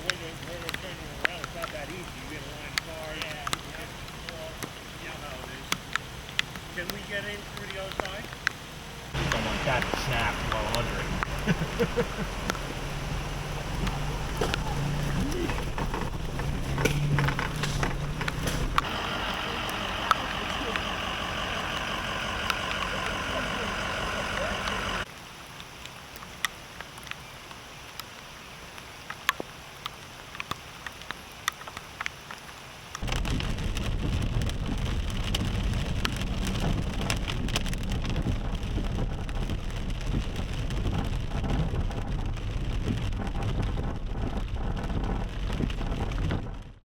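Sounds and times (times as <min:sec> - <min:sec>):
heavy steady rain: 0:00.0 - 0:46.8
drips and taps: 0:09.2 - 0:19.0
vehicle engine running: 0:09.2 - 0:25.1.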